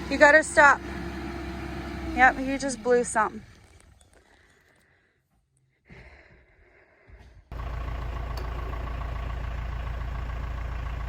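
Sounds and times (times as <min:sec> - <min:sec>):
engine idling: 0:00.0 - 0:04.6, 0:07.5 - 0:11.0.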